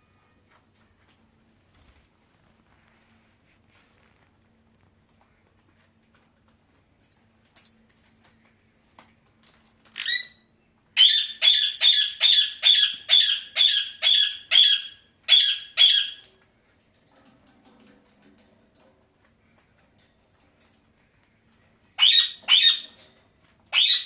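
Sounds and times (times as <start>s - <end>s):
parakeet harsh screeches: 22.0s - 22.9s, 23.7s - 24.0s.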